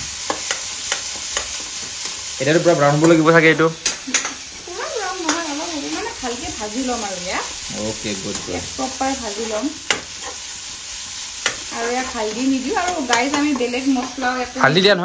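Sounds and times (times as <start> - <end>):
paste sizzling in hot oil: 0.0 - 15.0
spatula tapping on a pan: 0.2 - 1.7, 3.8 - 4.4, 9.9 - 10.1, 11.4 - 11.6
spatula scraping a pan: 7.4 - 14.8.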